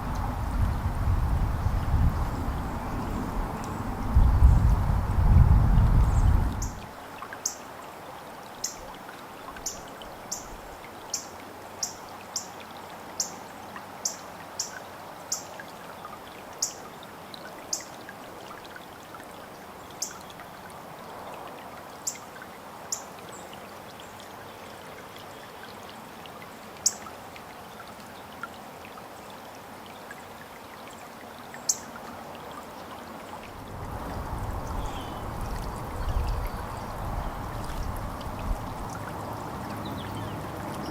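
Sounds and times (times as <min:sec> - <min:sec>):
steady rushing water: 0:00.0 - 0:40.9
songbirds chip notes: 0:06.0 - 0:07.6, 0:34.6 - 0:38.0.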